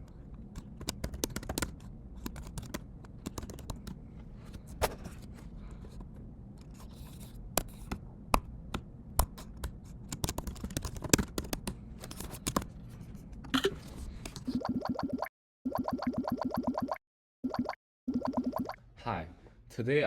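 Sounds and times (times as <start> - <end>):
computer keyboard typing: 0.5 - 4.0, 9.6 - 11.8.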